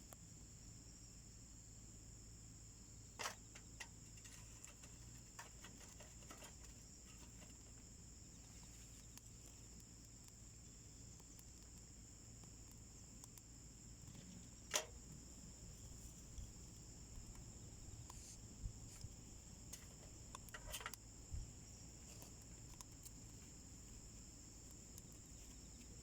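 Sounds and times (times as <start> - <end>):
insects droning: 0.0 - 26.0
wood fire crackling: 3.5 - 26.0.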